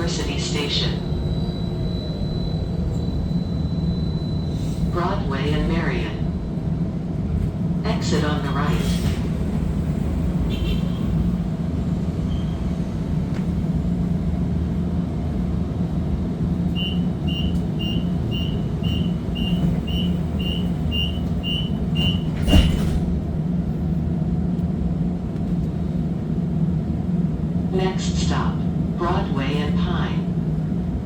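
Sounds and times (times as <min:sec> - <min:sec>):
tram humming: 0:00.0 - 0:31.0
short high beeps: 0:16.7 - 0:22.3.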